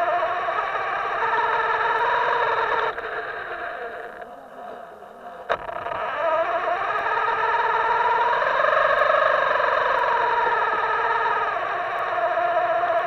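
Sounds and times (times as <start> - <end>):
electric motor whining: 0.0 - 13.0
sharp click: 5.4 - 6.0.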